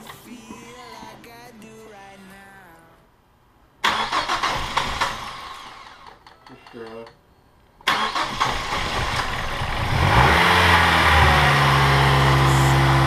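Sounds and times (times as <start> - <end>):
engine starter cranking: 3.8 - 6.3, 7.8 - 10.4
car engine revving and idling: 8.2 - 13.0.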